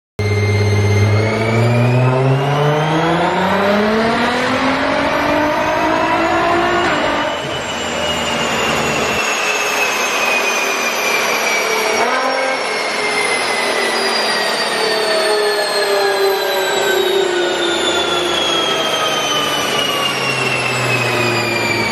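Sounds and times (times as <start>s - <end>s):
car engine revving: 0.2s - 9.1s
high-pitched whine: 0.2s - 21.9s.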